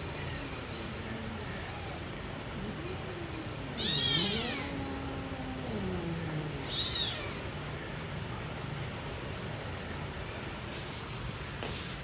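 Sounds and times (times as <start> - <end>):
cat meowing: 3.8 - 4.8, 6.6 - 7.4.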